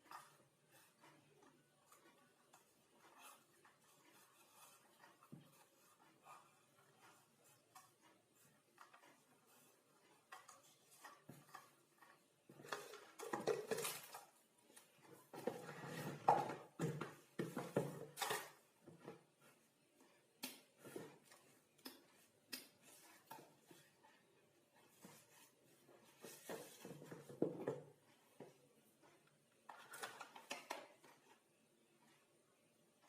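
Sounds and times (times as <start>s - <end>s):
clattering and scraping: 15.0s - 19.2s.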